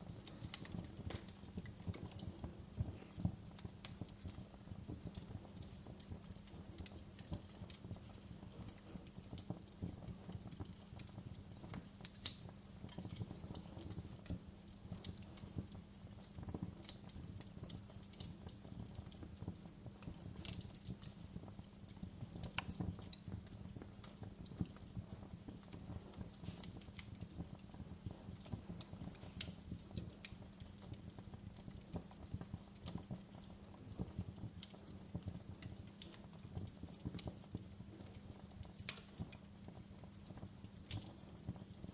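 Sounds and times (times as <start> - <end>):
wood fire crackling: 0.0 - 41.9.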